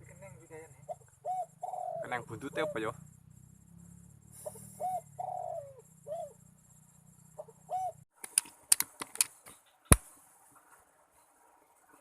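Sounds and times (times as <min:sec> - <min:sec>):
dove cooing: 0:00.7 - 0:03.0, 0:04.4 - 0:06.6, 0:07.2 - 0:08.0
sharp clicks and knocks: 0:08.2 - 0:10.0.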